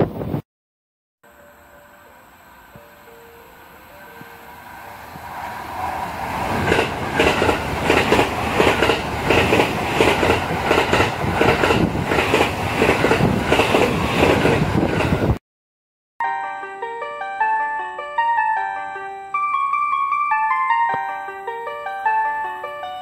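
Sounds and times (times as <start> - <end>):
electric train passing: 1.3 - 15.4
wheels clacking over rail joints: 5.7 - 15.2.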